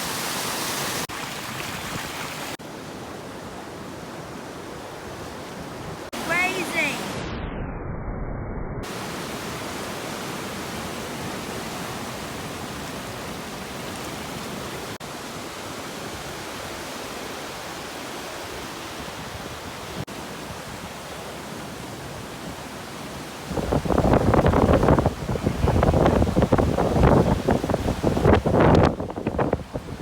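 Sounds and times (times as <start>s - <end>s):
floodwater rushing: 0.0s - 3.3s, 6.0s - 7.1s, 8.9s - 30.0s.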